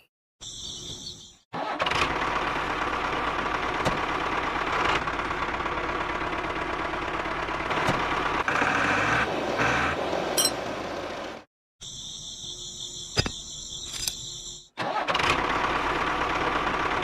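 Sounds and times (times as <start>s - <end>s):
small engine running: 1.6s - 11.5s, 14.8s - 17.0s.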